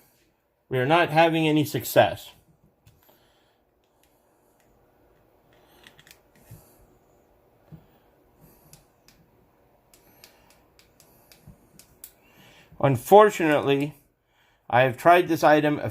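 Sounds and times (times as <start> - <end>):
faint plastic clicks and handling: 3.7 - 6.7.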